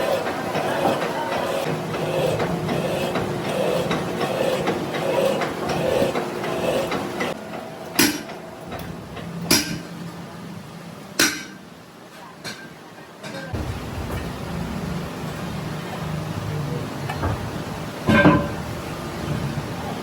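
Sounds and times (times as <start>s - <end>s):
workshop machine humming: 0.0s - 12.1s, 12.9s - 20.0s
sharp metal knocks: 9.5s - 9.9s.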